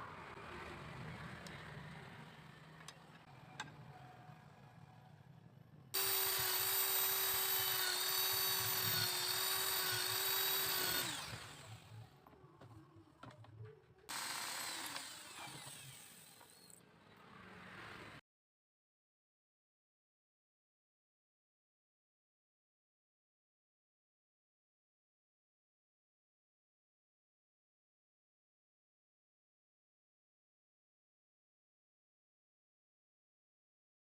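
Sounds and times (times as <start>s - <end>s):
power tool high-pitched whine: 6.0s - 12.1s, 14.1s - 16.8s.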